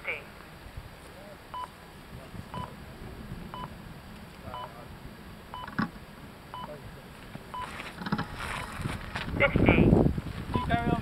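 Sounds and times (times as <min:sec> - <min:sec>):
high double-toned timer beeps: 0:05.6 - 0:05.8.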